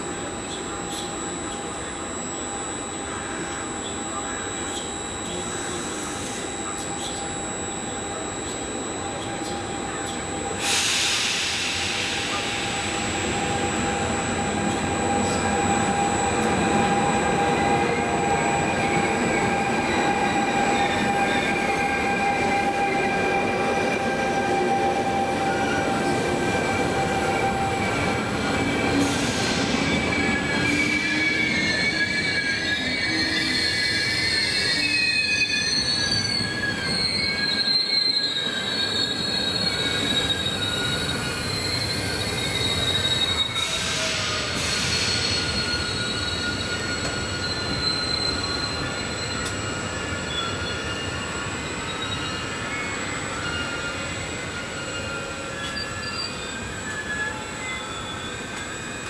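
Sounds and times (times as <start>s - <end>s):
train wheels squealing: 0.0s - 59.0s
rush of hissing noise: 10.5s - 17.1s.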